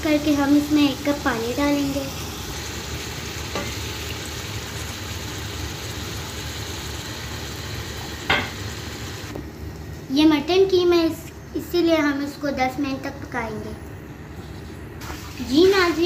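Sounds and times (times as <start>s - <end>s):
food sizzling in hot oil: 0.0s - 9.3s, 15.0s - 16.0s
water poured and stirred: 15.0s - 16.0s.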